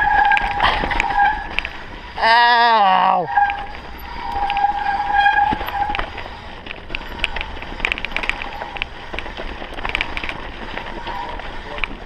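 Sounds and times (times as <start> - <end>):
bike brakes squealing: 0.0 - 8.8, 10.8 - 12.0
bike rattling over rough ground: 0.0 - 12.0.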